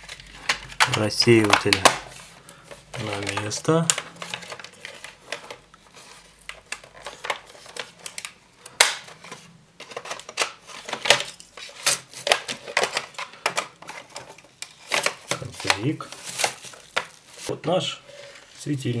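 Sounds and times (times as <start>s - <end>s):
plastic clicks and snaps: 0.0s - 2.0s.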